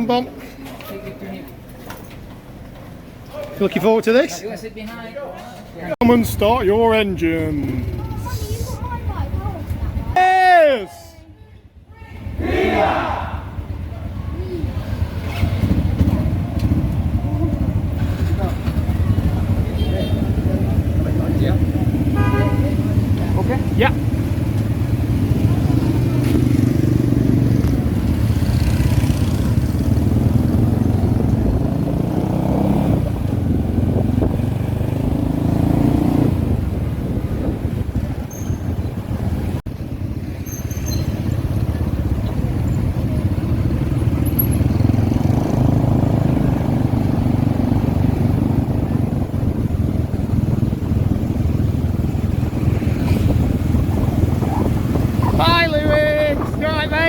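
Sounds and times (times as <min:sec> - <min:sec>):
motorbike engine: 0:12.5 - 0:57.0.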